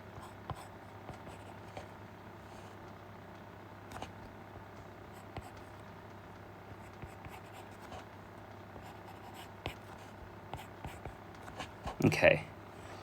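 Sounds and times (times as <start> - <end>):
steady low hum: 0.0 - 13.0
pencil scratching and tapping: 0.2 - 1.9, 5.2 - 5.8, 6.8 - 8.1, 8.8 - 12.0.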